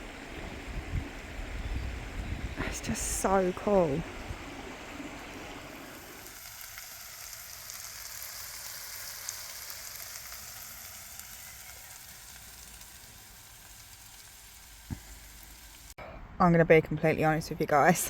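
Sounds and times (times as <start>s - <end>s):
food sizzling in a pan: 5.2s - 16.0s.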